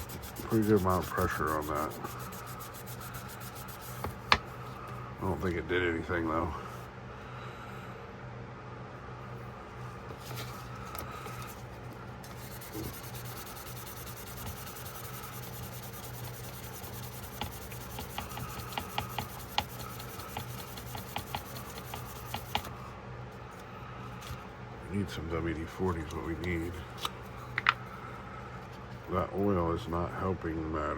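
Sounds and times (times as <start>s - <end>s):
abrasive rubbing on knife blade: 0.0s - 4.1s
steady low hum: 0.0s - 30.9s.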